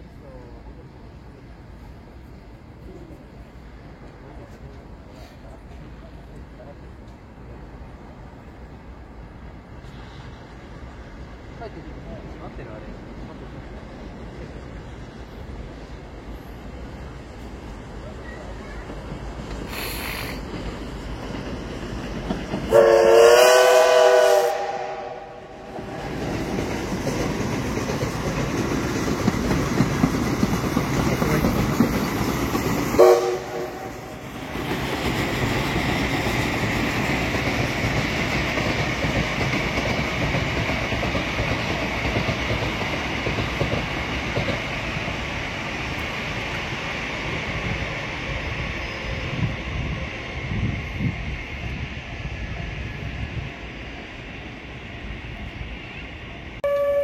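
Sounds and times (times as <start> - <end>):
train rumbling along rails: 0.0 - 57.0
train horn: 22.7 - 25.7, 33.0 - 34.1, 56.6 - 57.0.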